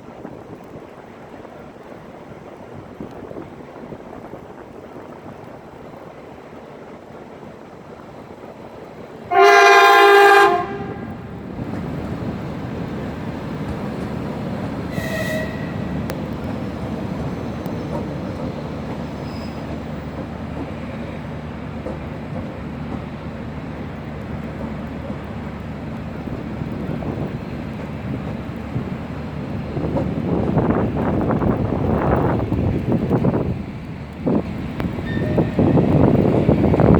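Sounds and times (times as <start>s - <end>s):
train rumbling past: 0.0s - 36.9s
train horn: 9.3s - 11.4s, 14.9s - 16.0s, 35.0s - 35.8s
wind noise: 10.2s - 36.9s.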